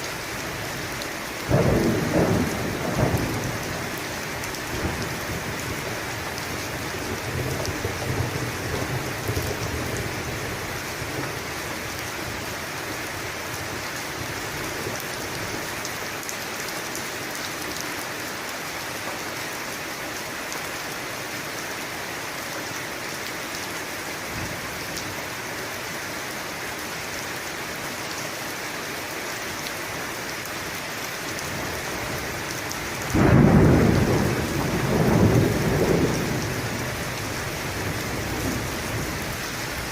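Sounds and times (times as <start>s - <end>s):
steady rain: 0.0s - 39.9s
thunder rumble: 1.5s - 4.0s, 33.1s - 39.9s.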